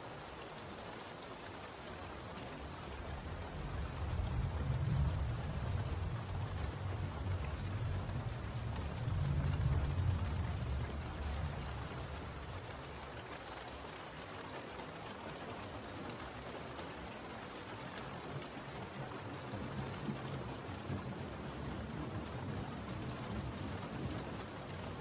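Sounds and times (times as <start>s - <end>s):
steady rain falling: 0.0s - 25.0s
low rumble: 3.5s - 12.7s.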